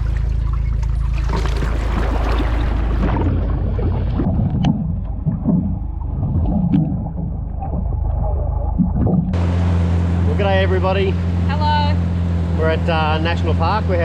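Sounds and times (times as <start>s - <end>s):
jet ski engine running: 0.0s - 6.0s, 9.3s - 14.0s
water sloshing and splashing: 0.0s - 9.4s.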